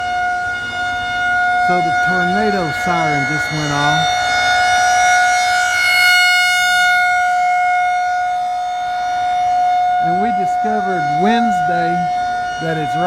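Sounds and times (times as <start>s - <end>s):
warning siren wailing: 0.0s - 13.0s.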